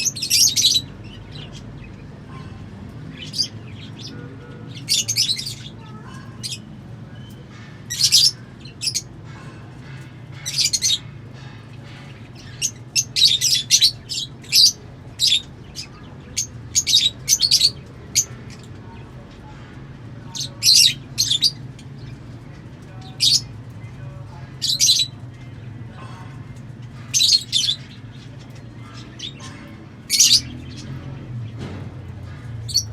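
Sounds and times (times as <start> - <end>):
lovebirds chirping shrilly: 4.8 - 18.5, 20.3 - 22.1, 26.9 - 31.0.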